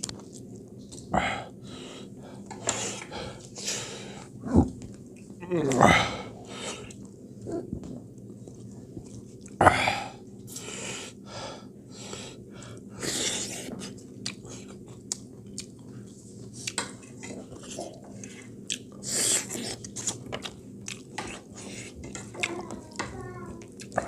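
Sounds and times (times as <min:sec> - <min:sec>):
wet chewing: 0:13.8 - 0:22.8.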